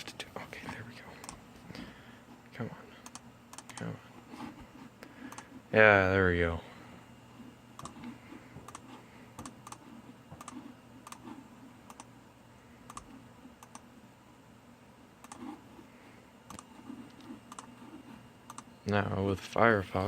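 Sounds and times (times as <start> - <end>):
low steady hum: 0.0 - 20.0
computer keys and mouse clicks: 3.0 - 3.9, 7.8 - 8.0, 8.6 - 8.8, 9.4 - 11.2, 11.9 - 12.1, 12.9 - 13.9, 15.2 - 15.5, 16.5 - 17.7, 18.5 - 18.7.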